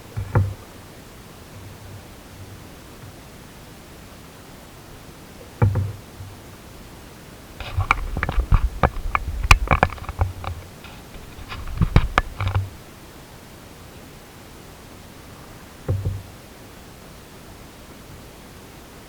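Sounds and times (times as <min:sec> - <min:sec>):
knocks against canoe hull: 0:00.0 - 0:00.8, 0:05.6 - 0:06.4, 0:07.6 - 0:12.8, 0:15.8 - 0:16.3
steady hiss: 0:00.0 - 0:19.0.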